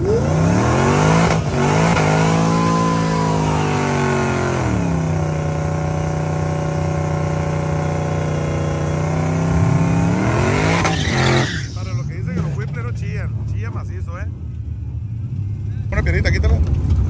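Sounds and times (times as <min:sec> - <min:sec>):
drag racing car engine revving: 0:00.0 - 0:12.5.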